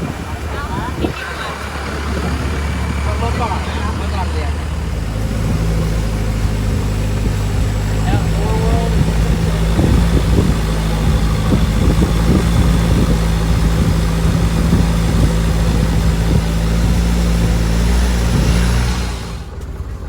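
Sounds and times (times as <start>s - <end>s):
broad rushing noise: 0.0s - 19.8s
motorboat engine running: 0.0s - 20.0s.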